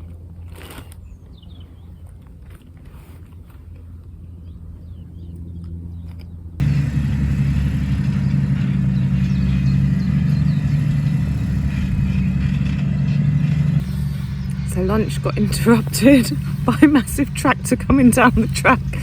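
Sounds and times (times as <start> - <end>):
tractor diesel engine drone: 3.9 - 19.0.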